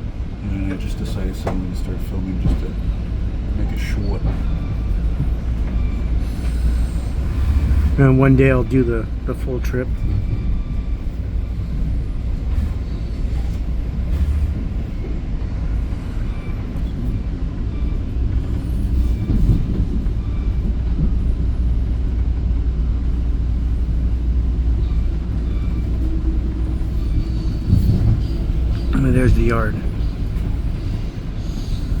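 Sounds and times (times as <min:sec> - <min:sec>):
train rumbling along track: 0:00.0 - 0:32.0.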